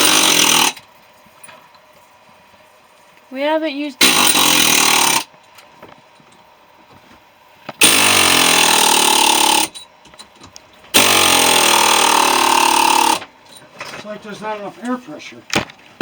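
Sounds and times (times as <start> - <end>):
pneumatic air hammer firing: 0.0 - 0.8, 4.0 - 5.3, 7.8 - 9.8, 10.9 - 13.3.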